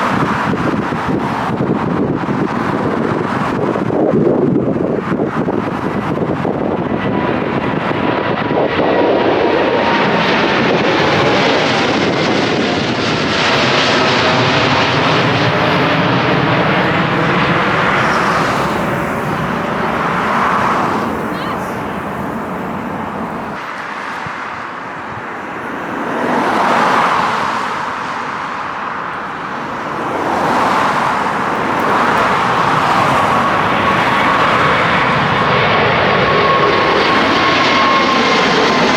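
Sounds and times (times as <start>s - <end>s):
jet airliner passing overhead: 0.0s - 38.9s.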